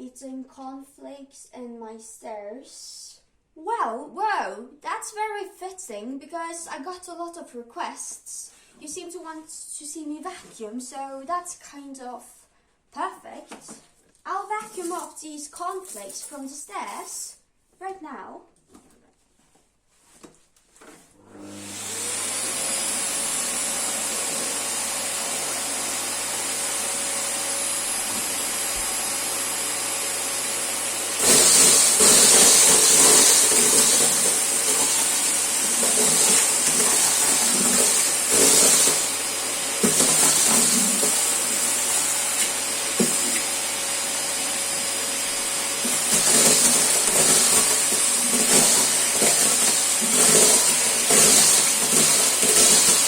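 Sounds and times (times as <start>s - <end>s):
vacuum cleaner running: 21.2s - 53.0s
cornflakes crackling in vacuum: 31.2s - 39.2s, 45.8s - 53.0s.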